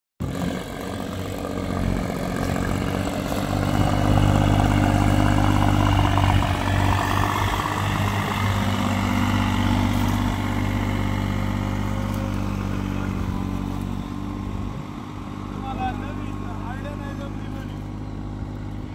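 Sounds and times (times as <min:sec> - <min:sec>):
engine running: 0:00.2 - 0:18.9.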